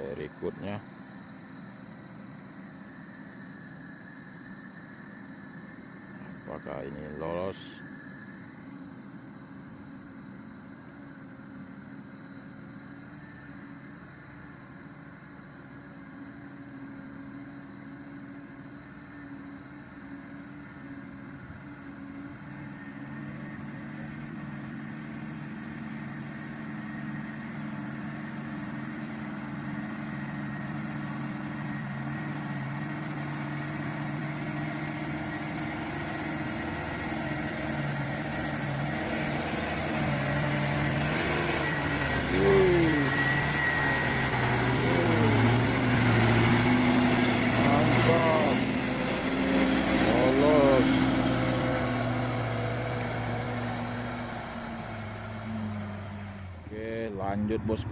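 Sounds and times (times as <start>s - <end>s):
diesel truck engine droning: 0.0s - 0.8s, 21.4s - 57.9s
high-pitched whine: 0.0s - 57.9s.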